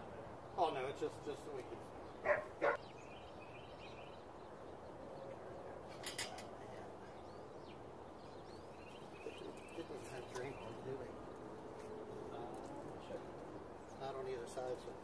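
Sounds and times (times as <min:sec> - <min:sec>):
distant birds chirping: 0:00.0 - 0:15.0.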